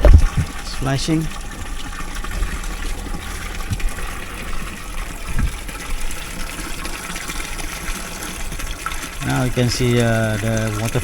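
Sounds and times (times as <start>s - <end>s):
low gulps of siphon: 0.0s - 11.0s
water gushing and gurgling: 0.0s - 11.0s.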